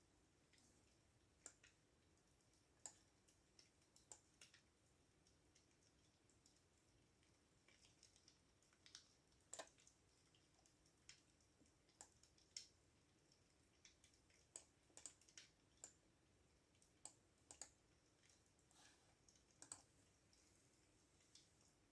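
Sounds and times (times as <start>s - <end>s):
keyboard typing: 19.6s - 19.9s.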